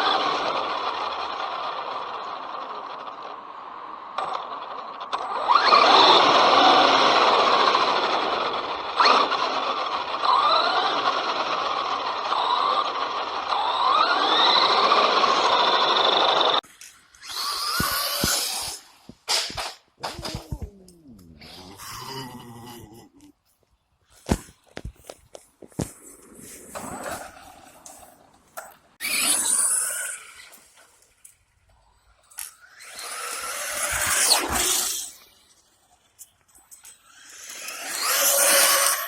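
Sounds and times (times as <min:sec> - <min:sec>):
electric motor whining: 0:17.2 - 0:19.2, 0:29.0 - 0:30.8, 0:32.3 - 0:35.5, 0:37.0 - 0:39.0
knocks and scuffs: 0:23.4 - 0:28.8.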